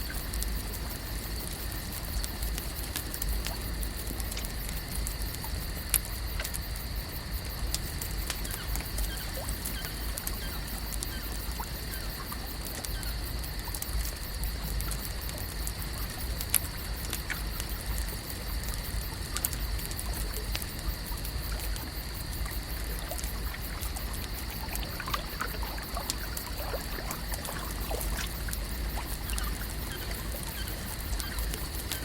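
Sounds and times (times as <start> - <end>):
water trickling and lapping: 0.0 - 32.0
small chirps: 8.2 - 13.3, 21.7 - 32.0.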